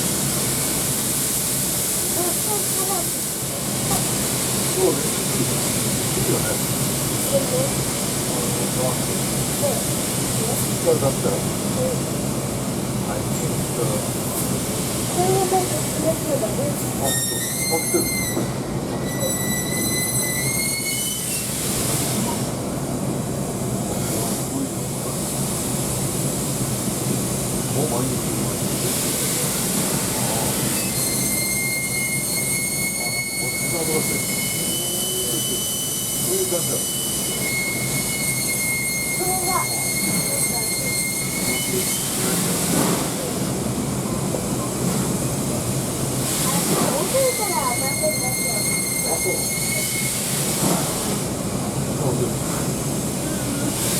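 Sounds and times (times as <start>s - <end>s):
steam rushing hiss: 0.0s - 53.9s
train car rumble: 0.0s - 53.9s
high-pitched metallic squeal: 17.0s - 21.6s, 30.7s - 42.3s, 47.2s - 50.2s.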